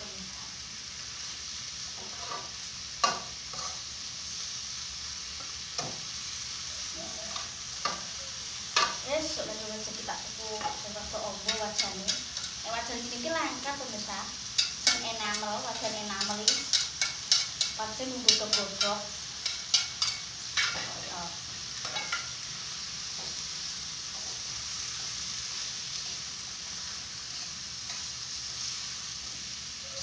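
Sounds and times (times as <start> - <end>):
chicken sizzling in a pan: 0.0 - 30.0
spatula scraping and clacking on pan: 1.9 - 3.9, 7.2 - 9.0, 10.5 - 13.0, 14.4 - 21.0, 21.8 - 23.5, 24.1 - 28.9.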